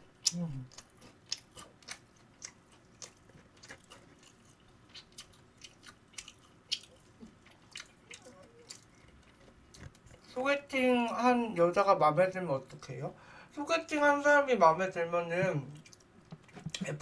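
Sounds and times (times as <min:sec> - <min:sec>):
person chewing crunchy food: 0:00.1 - 0:10.3.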